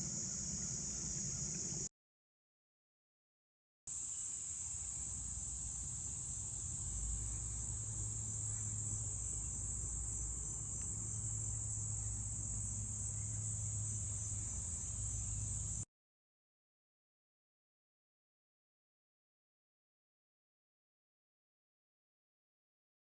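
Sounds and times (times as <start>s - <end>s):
crickets chirping: 0.0s - 1.9s, 3.9s - 15.9s.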